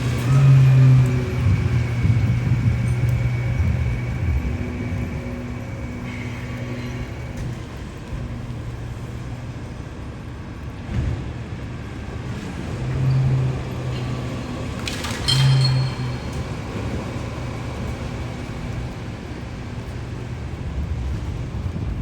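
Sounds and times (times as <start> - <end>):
vehicle engine hum: 0.0 - 22.0.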